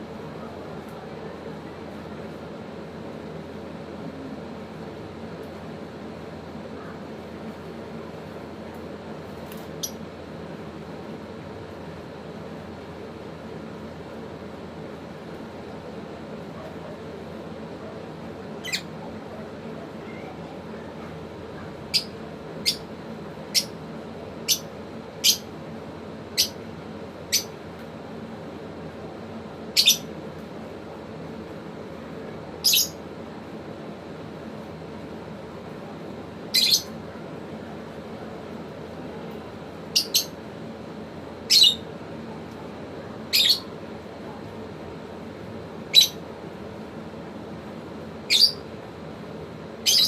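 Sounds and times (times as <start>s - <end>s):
steady low hum: 0.0s - 50.0s
lovebird high-pitched chirps: 9.8s - 10.0s, 18.6s - 18.9s, 21.9s - 22.9s, 23.5s - 23.8s, 24.4s - 25.5s, 26.4s - 26.6s, 27.3s - 27.5s, 29.8s - 30.1s, 32.6s - 33.0s, 36.5s - 37.0s, 39.9s - 40.4s, 41.5s - 41.8s, 43.3s - 43.7s, 45.9s - 46.2s, 48.3s - 48.7s.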